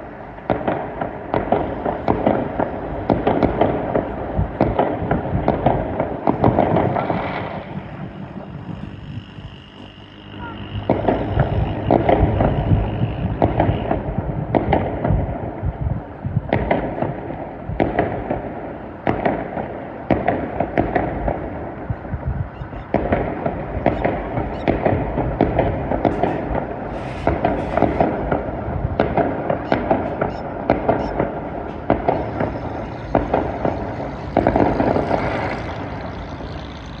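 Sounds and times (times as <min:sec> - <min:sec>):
fireworks bangs and crackling: 0:00.0 - 0:37.0.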